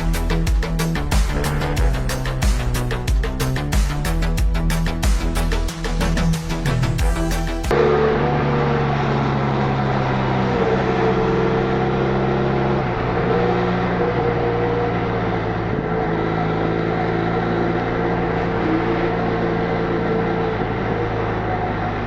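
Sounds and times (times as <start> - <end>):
motorcycle engine at speed: 0.0 - 22.0
wind and road noise: 7.7 - 22.0.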